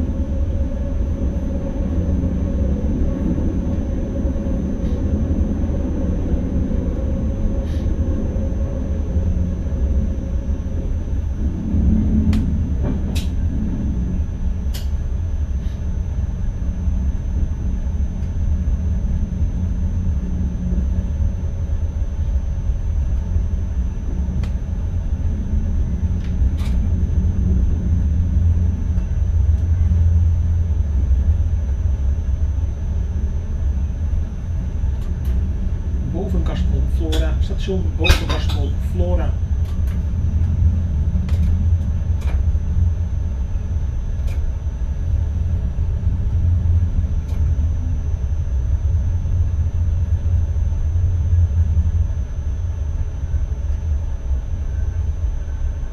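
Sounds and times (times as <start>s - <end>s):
train wheels rumbling on track: 11.3s - 15.0s.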